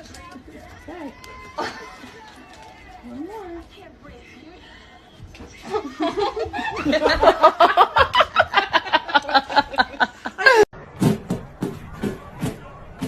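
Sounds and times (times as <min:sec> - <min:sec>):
person laughing hard: 0:06.0 - 0:10.7.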